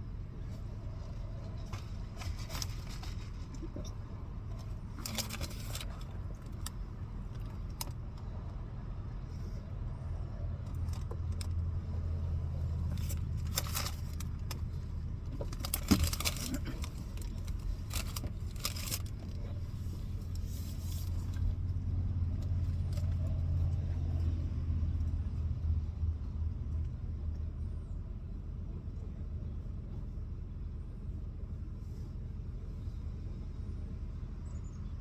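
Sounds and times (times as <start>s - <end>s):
clicking and rustling handling: 12.8s - 21.6s.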